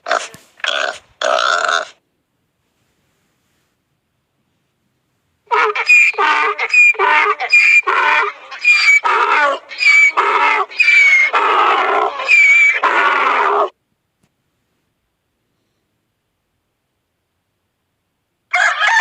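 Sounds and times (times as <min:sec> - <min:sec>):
animal calling: 0:05.5 - 0:13.8.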